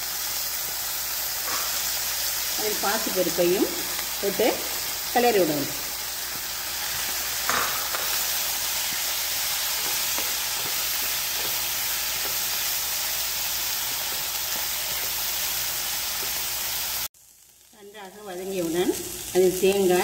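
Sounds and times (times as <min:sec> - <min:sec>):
food sizzling in a pan: 0:00.0 - 0:20.0
spatula knocking and scraping pan: 0:06.2 - 0:12.6.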